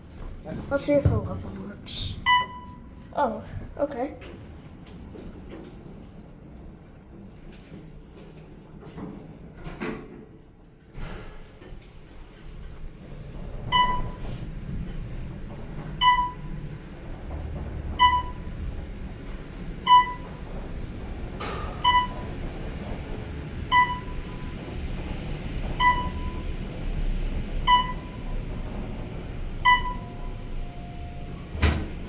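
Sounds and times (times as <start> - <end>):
elevator electronic beep: 2.0 - 3.0, 13.3 - 26.7, 27.3 - 28.8, 29.5 - 32.0.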